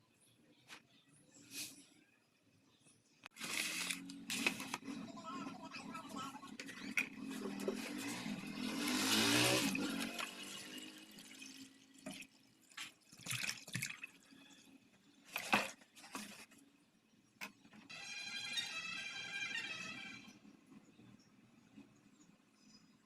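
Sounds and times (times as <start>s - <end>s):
water pouring into plastic bottle: 8.8s - 14.5s.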